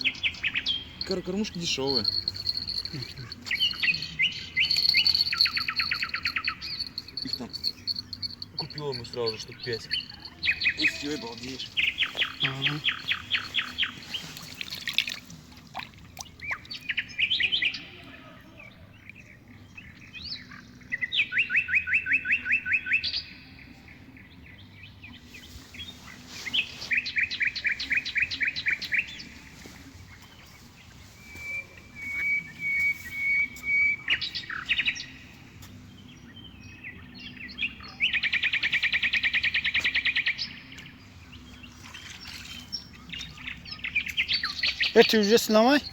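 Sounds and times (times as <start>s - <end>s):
songbird singing fast trills: 0.0s - 15.2s, 24.6s - 35.3s, 36.3s - 45.9s.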